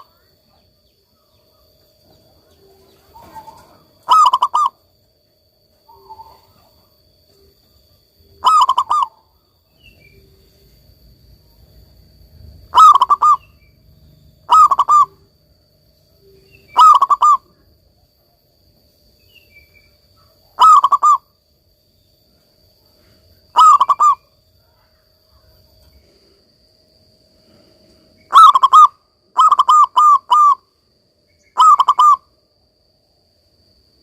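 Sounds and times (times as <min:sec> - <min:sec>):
dove cooing: 0:00.0 - 0:04.9, 0:05.9 - 0:07.0, 0:08.3 - 0:10.4, 0:12.6 - 0:13.7, 0:14.4 - 0:15.3, 0:16.3 - 0:17.7, 0:20.2 - 0:21.3, 0:23.5 - 0:25.6, 0:28.3 - 0:30.7, 0:31.5 - 0:32.3.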